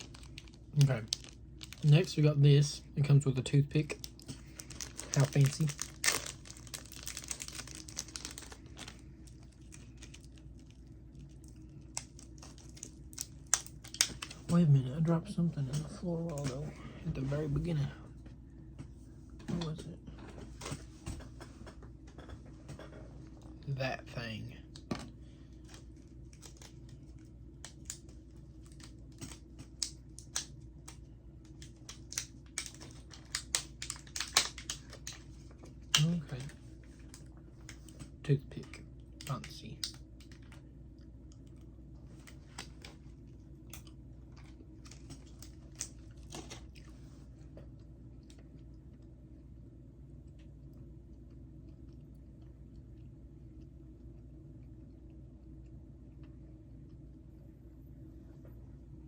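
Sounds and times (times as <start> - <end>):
plastic packaging crinkling: 0.0 - 2.3, 3.8 - 14.5, 25.5 - 37.8.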